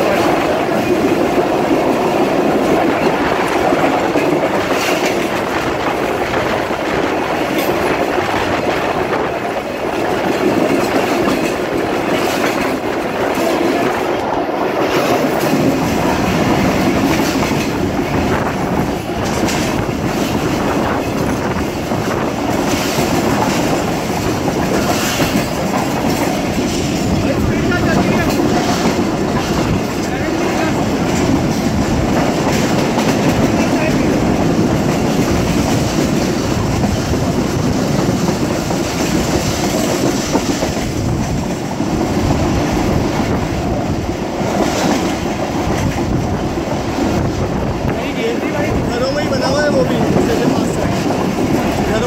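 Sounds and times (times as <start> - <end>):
train wheels rolling on rails: 0.0 - 52.0
wheels clicking over rail joints: 0.0 - 52.0.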